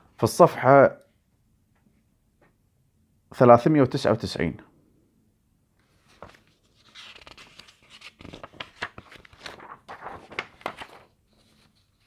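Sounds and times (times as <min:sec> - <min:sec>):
book pages rustling and flicking: 0:05.8 - 0:12.0.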